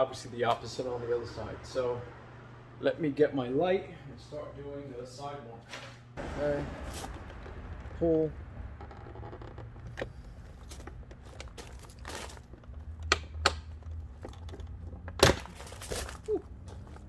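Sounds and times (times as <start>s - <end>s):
plastic rustling and creaking: 6.8s - 13.1s.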